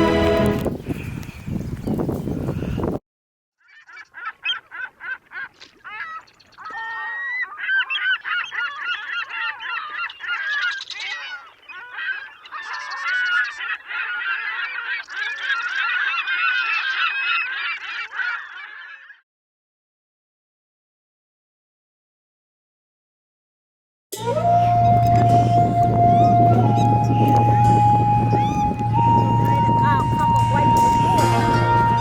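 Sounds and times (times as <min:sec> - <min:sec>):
waterfowl honking: 0:03.7 - 0:19.2, 0:24.4 - 0:32.0.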